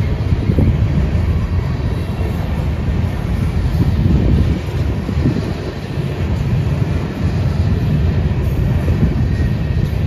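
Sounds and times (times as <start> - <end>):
freight train rumbling past: 0.0 - 10.0
wind buffeting microphone: 0.0 - 10.0.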